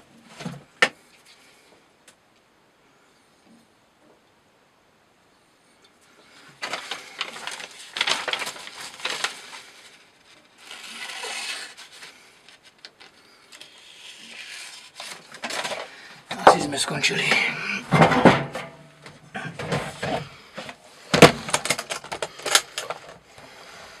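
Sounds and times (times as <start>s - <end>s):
knife rasping through rope: 10.6s - 12.2s, 13.6s - 15.3s.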